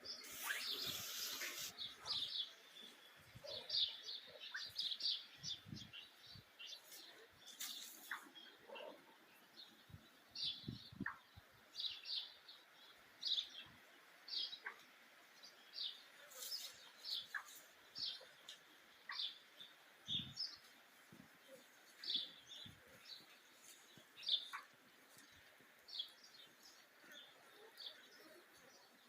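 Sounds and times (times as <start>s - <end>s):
faint outdoor background noise: 0.0s - 29.0s
small birds chirping: 0.0s - 29.0s.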